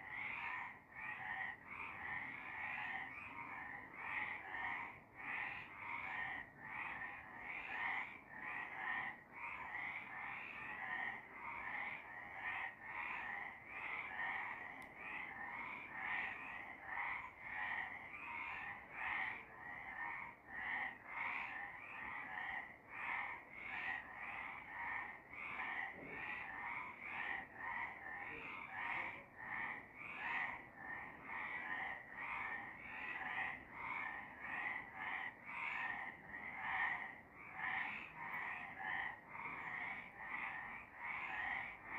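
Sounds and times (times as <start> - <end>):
frogs croaking in chorus: 0.0 - 41.9.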